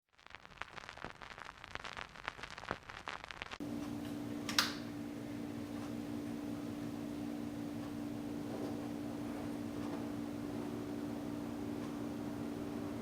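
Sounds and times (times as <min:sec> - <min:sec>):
faint crackling and clicking: 0:00.1 - 0:04.8
fan air hissing: 0:03.6 - 0:13.0
fan motor humming: 0:03.6 - 0:13.0
sharp click: 0:04.5 - 0:04.8.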